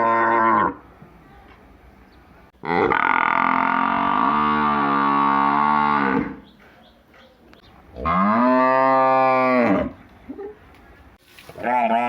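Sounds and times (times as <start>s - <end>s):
cow mooing: 2.6s - 6.4s, 8.0s - 10.0s.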